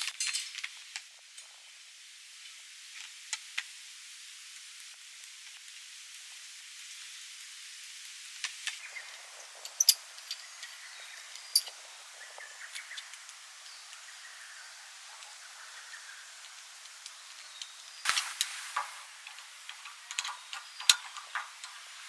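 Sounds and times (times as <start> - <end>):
sharp clicks and light clinks: 0.0 - 0.8, 9.6 - 11.8, 17.6 - 22.0
steady outdoor hiss: 0.0 - 22.0.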